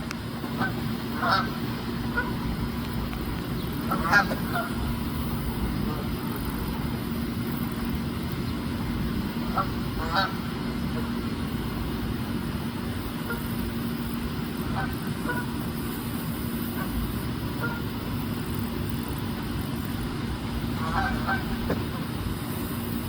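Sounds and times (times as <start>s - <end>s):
steady low rumble: 0.0s - 23.0s
geese honking: 0.5s - 2.4s, 3.8s - 5.0s, 9.4s - 11.2s, 13.2s - 13.5s, 14.6s - 15.6s, 17.5s - 17.9s, 20.7s - 22.1s.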